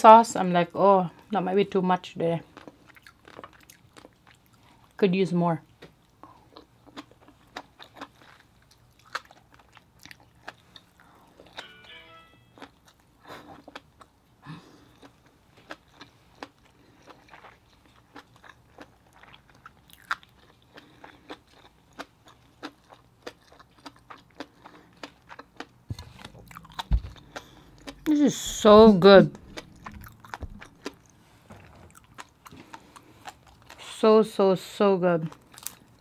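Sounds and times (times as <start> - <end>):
wet chewing smacks and clicks: 2.6 - 4.9, 5.7 - 11.1, 29.3 - 33.8.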